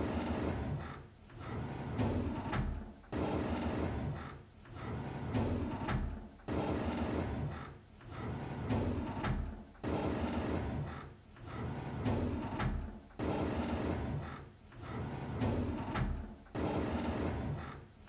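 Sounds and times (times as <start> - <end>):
drawer sliding open: 11.5 - 17.8.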